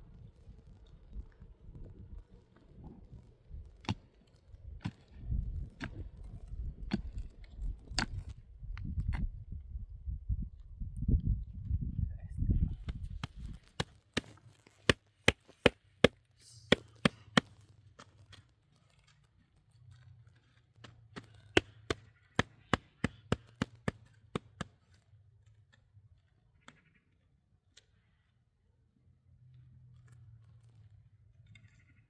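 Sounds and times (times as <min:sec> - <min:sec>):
tool chopping hard surface: 0:12.9 - 0:17.7, 0:21.2 - 0:24.7.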